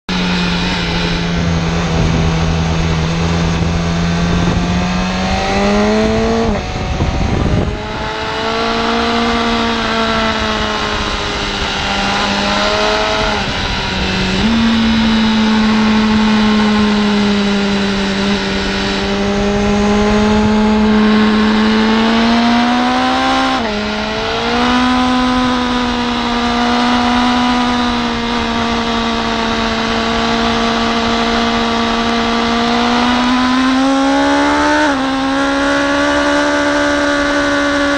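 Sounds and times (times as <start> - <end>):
motorcycle engine running hard: 0.1 - 37.9
wind rushing: 0.5 - 30.0.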